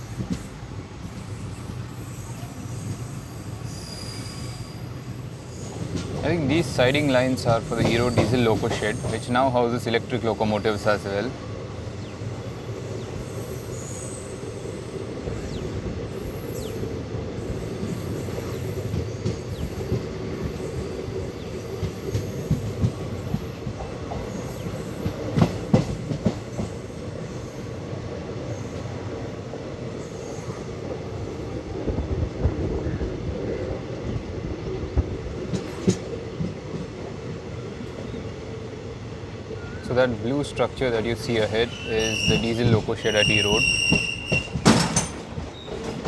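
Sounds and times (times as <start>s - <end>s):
train rumble on board: 0.0s - 46.0s
train wheel clacks: 5.6s - 11.2s, 17.4s - 27.3s, 35.0s - 38.0s, 40.4s - 46.0s.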